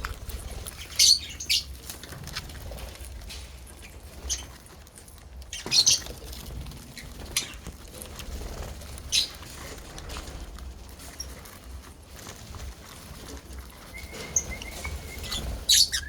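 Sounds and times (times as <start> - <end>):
lovebirds chirping: 0.0 - 1.8, 3.8 - 4.6, 5.5 - 6.3, 9.1 - 9.4, 13.8 - 16.0.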